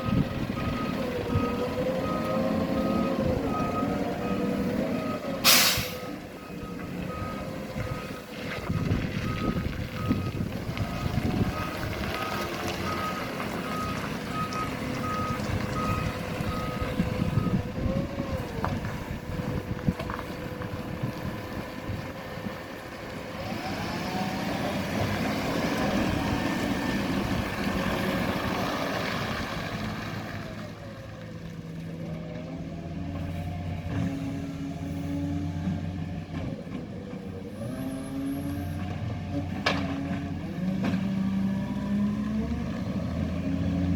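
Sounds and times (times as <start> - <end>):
truck backup beeper: 0.0 - 19.7
truck engine revving: 0.0 - 43.9.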